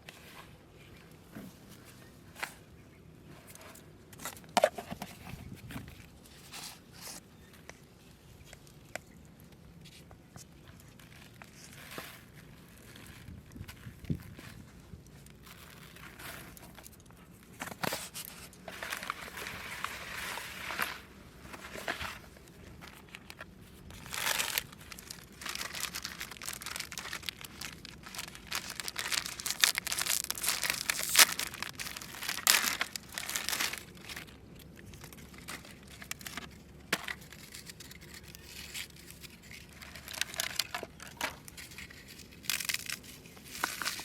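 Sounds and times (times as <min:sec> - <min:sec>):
rustling and crinkling: 0:00.0 - 0:44.0.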